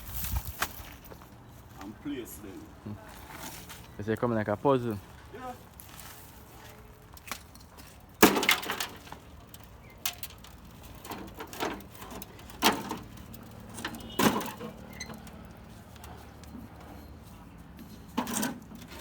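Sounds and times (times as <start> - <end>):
debris chunks knocking and scraping: 8.2 - 14.8.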